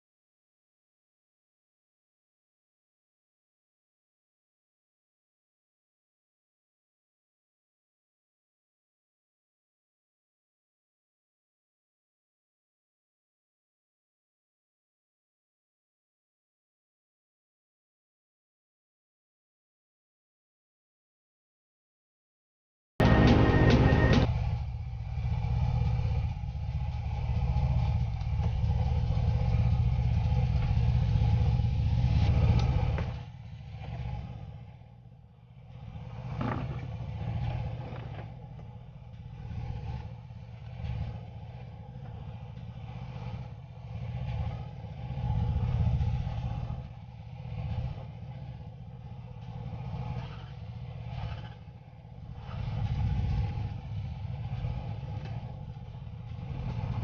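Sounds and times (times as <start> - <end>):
car engine running: 23.0 - 57.0.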